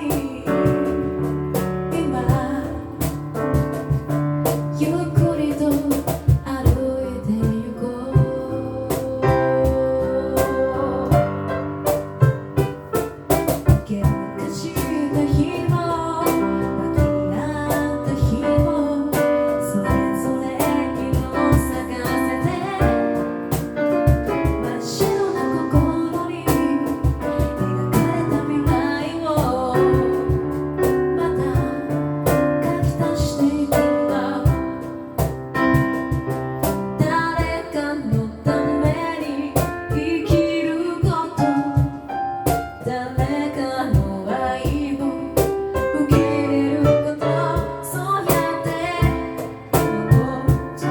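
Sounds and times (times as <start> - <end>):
lead vocal: 1.8 - 3.3, 4.8 - 11.7, 13.7 - 35.2, 42.8 - 50.9
a cappella group singing: 4.8 - 11.6, 13.9 - 35.1, 42.8 - 50.9.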